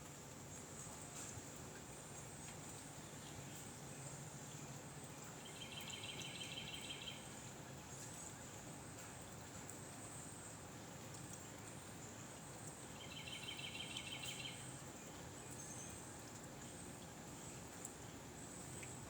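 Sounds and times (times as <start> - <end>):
low hiss: 0.0 - 19.0.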